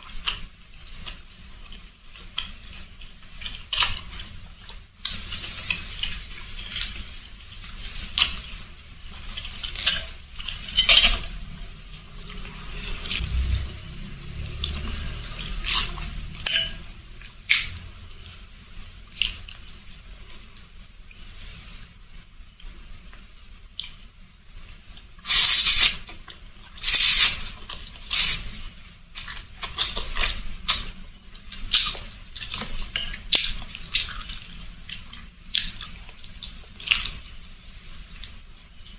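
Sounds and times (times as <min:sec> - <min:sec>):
utensils clinking against bowl: 0:09.7 - 0:11.4, 0:14.7 - 0:16.9.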